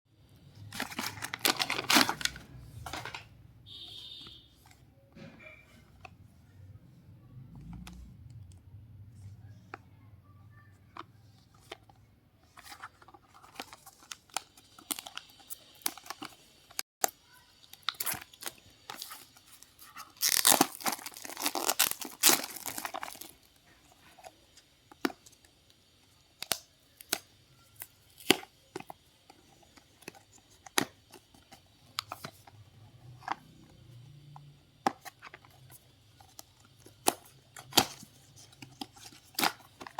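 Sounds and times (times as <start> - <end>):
packaging tearing and rustling: 0.6 - 3.2, 12.5 - 16.8, 17.5 - 23.5, 35.0 - 39.9
packaging clicks and taps: 26.3 - 39.9.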